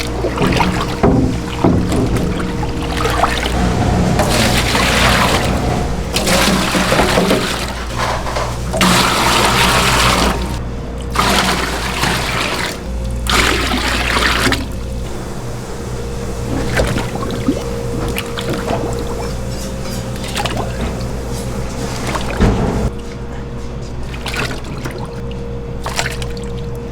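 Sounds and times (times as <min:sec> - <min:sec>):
water gushing: 0:00.0 - 0:22.9
low machine hum: 0:00.0 - 0:26.9.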